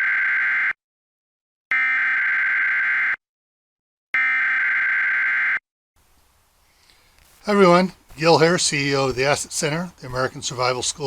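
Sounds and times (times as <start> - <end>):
electronic alarm tone blasts: 1.7 - 3.2, 4.2 - 5.6.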